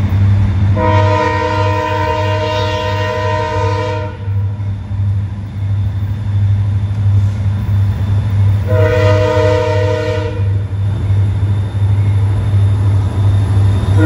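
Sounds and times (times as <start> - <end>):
diesel locomotive engines droning: 0.0 - 14.0
locomotive air horn chord: 0.8 - 4.5, 8.7 - 10.6.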